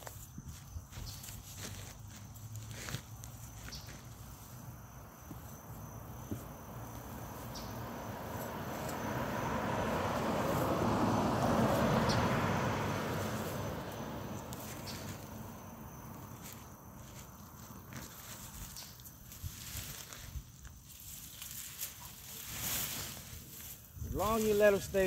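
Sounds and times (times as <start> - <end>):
high insect hum: 0.0 - 25.0
car passing by: 6.0 - 17.5.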